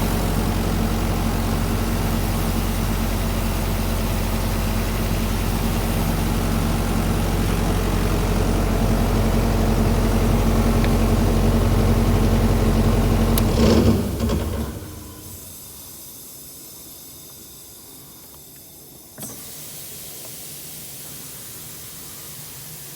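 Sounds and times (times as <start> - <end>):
diesel compressor engine running: 0.0 - 15.8
steady hiss: 15.1 - 22.9.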